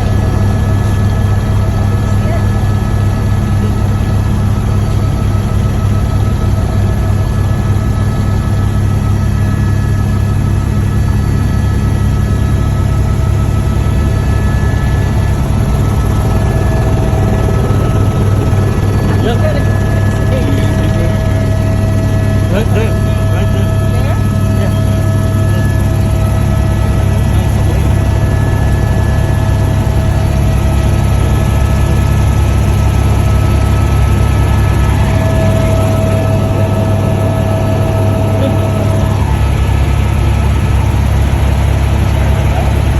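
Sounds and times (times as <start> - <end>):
helicopter drone: 0.0 - 42.9
high whining tones: 12.4 - 42.9.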